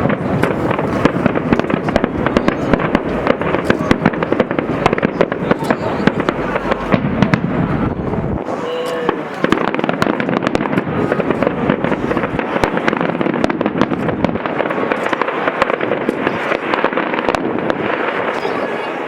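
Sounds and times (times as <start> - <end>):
deep low boom: 0.0 - 8.5
fireworks crackling: 0.0 - 19.0.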